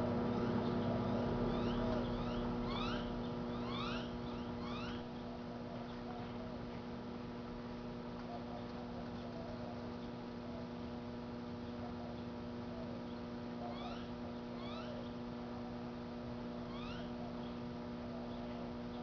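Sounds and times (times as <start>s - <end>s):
microwave oven humming: 0.0s - 19.0s
high rising chirp: 0.4s - 5.1s.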